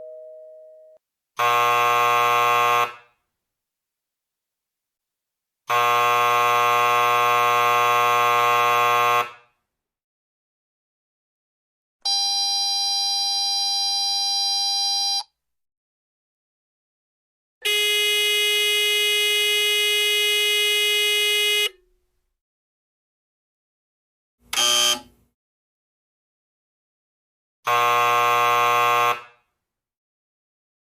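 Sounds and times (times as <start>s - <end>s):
electric doorbell buzzers: 24.5s - 25.1s.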